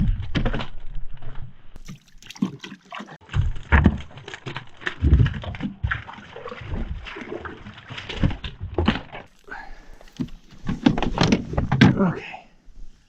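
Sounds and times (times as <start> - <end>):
water sloshing and splashing: 1.8 - 11.9.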